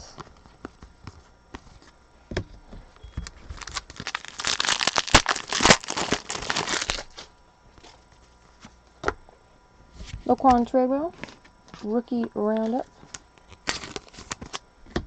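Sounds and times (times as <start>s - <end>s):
foil wrapper crinkling and tearing: 3.2s - 7.3s, 12.6s - 14.6s.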